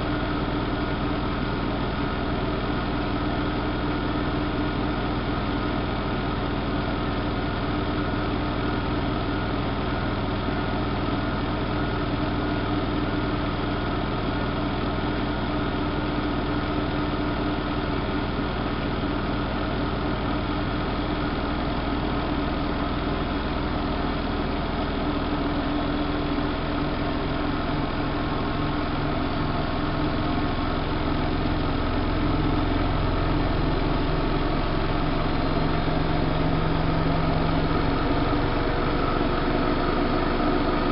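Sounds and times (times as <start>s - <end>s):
washing machine spinning: 17.3s - 40.9s.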